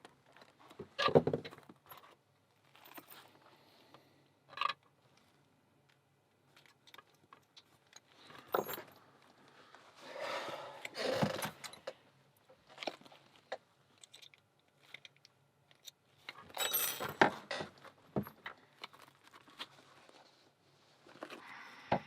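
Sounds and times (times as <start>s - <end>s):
metal parts rattling: 16.3s - 17.6s.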